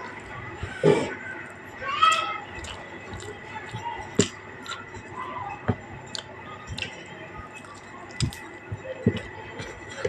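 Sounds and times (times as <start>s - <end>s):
person chewing: 0.0s - 5.2s, 6.0s - 8.6s.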